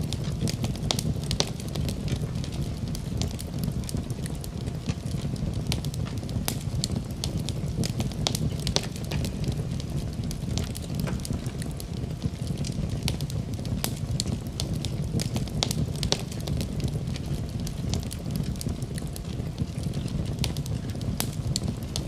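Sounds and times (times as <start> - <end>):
fire crackling and popping: 0.0 - 22.0
low rumble of flames: 0.0 - 22.0.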